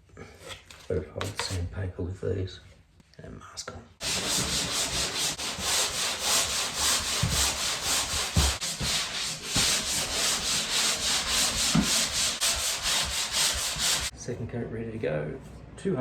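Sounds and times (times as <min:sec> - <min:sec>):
hand sanding plaster: 0:04.0 - 0:14.2.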